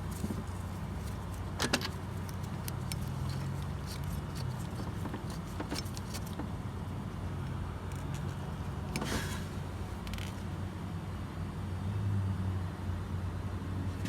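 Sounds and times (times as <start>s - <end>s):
metal bolt clicking and scraping: 0.0s - 6.5s.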